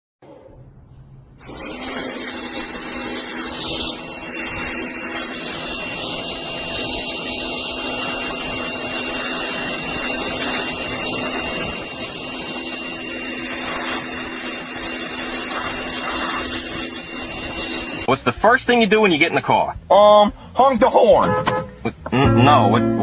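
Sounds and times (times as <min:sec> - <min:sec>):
pressure washer motor hum: 0:01.4 - 0:18.2
water spray hissing: 0:01.4 - 0:18.2.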